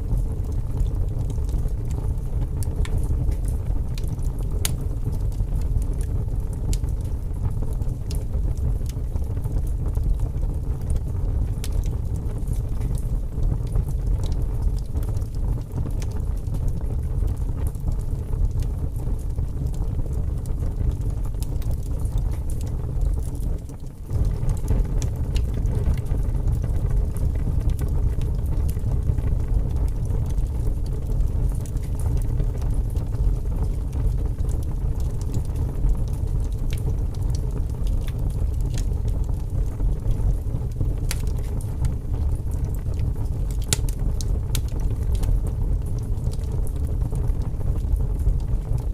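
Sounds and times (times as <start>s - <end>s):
burning wood crackling and popping: 0.0s - 48.9s
fire flames rumbling: 0.0s - 48.9s.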